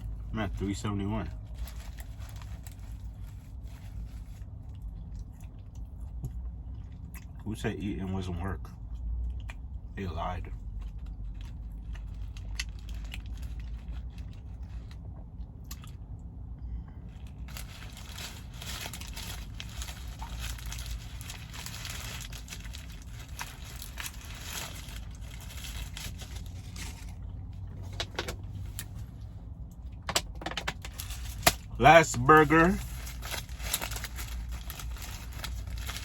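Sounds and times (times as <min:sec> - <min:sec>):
steady low rumble: 0:00.0 - 0:36.0
wrapper rustling: 0:00.6 - 0:04.5, 0:17.2 - 0:29.0, 0:30.7 - 0:36.0
person chewing: 0:15.0 - 0:16.2.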